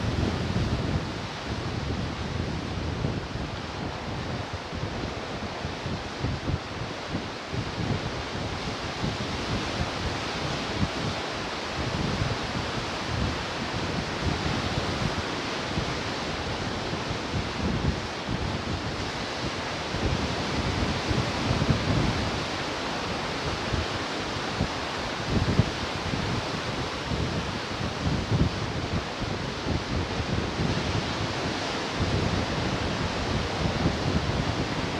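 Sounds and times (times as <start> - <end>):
ocean surf washing ashore: 0.0 - 34.9
wind buffeting microphone: 0.0 - 34.9.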